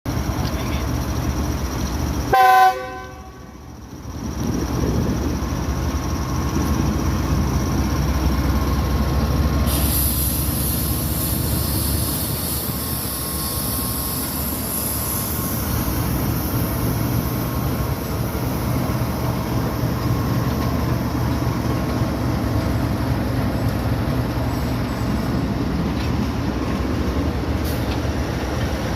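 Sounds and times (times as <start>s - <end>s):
train low rumble: 0.1s - 28.9s
locomotive horn: 2.3s - 3.6s
high hiss: 9.4s - 28.9s.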